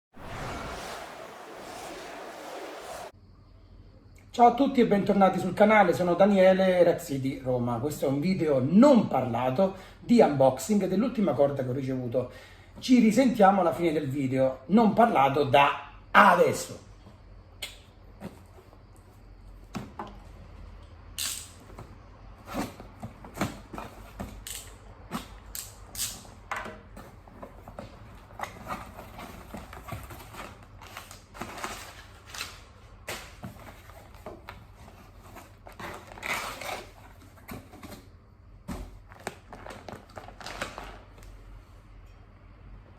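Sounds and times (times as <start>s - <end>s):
rustling packaging and rope: 27.0s - 41.2s.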